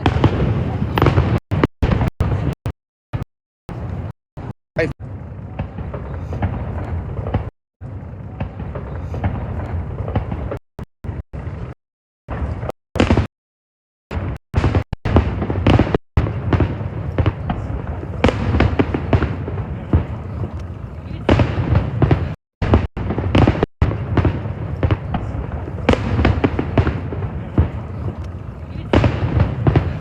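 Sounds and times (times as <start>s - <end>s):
fireworks bangs: 0.0s - 13.3s, 14.1s - 30.0s
low rumble: 3.7s - 13.2s.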